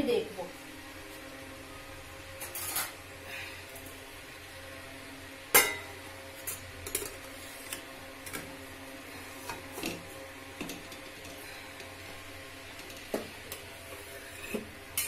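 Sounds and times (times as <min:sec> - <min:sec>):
metal cookware clattering: 0:05.6 - 0:07.1.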